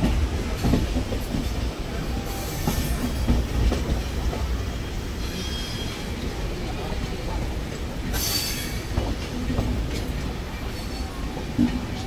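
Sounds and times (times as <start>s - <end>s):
train low rumble: 0.0s - 12.0s
faint high wheel squeal: 5.2s - 6.2s.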